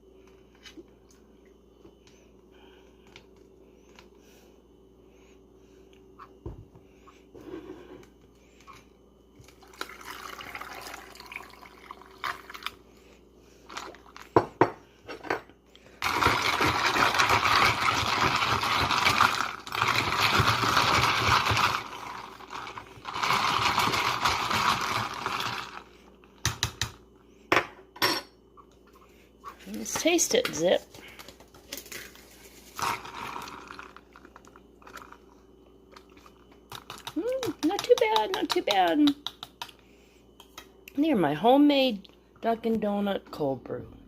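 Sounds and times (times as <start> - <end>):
liquid pouring into a cup: 9.5 - 12.8
kitchenware clinking: 27.5 - 28.4.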